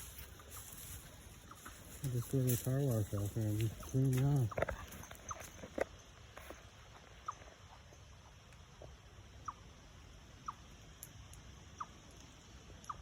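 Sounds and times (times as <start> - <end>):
chipmunk chirping: 0.0 - 5.6, 9.3 - 13.0.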